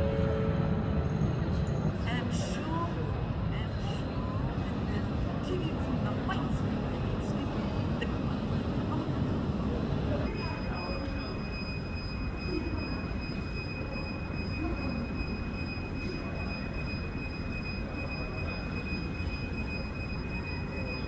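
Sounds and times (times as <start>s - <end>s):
high-pitched whine: 0.0s - 2.0s.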